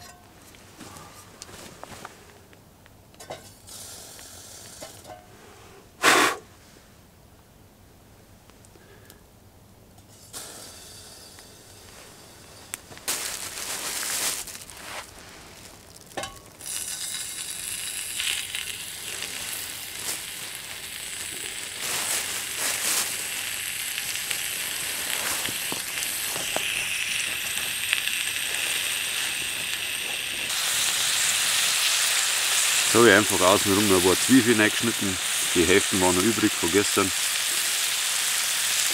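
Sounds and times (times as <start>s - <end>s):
fish sizzling in a pan: 15.6s - 38.9s.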